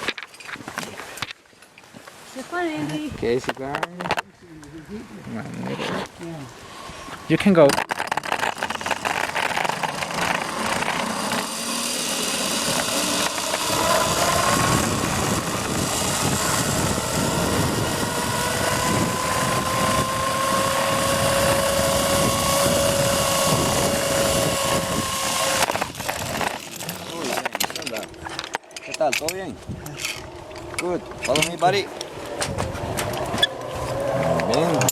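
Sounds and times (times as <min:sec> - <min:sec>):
zipline pulley whine: 0:07.8 - 0:28.2, 0:30.0 - 0:34.9.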